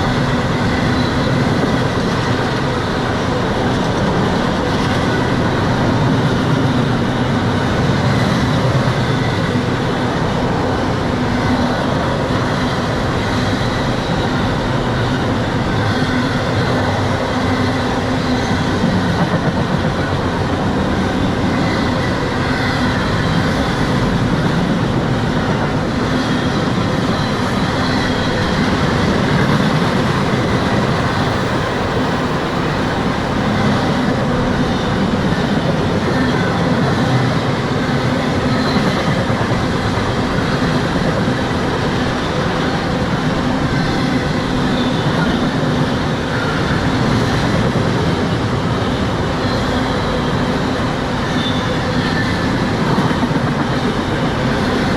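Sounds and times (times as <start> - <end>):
train wheels rumbling on rail: 0.0 - 54.9
high-pitched squeals: 25.4 - 39.2.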